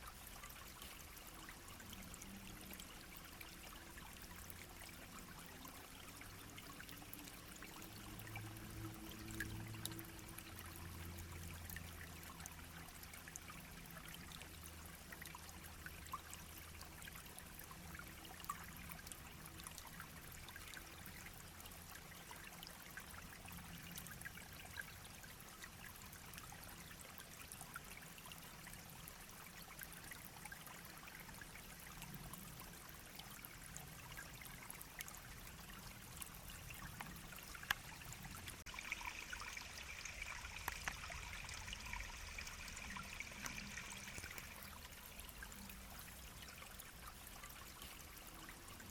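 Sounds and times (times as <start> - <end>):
small stream babbling: 0.0 - 48.9.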